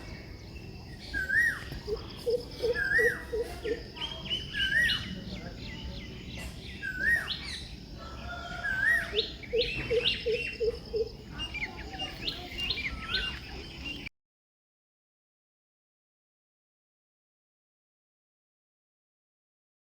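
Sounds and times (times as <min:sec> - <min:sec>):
birds chirping: 0:00.0 - 0:14.1.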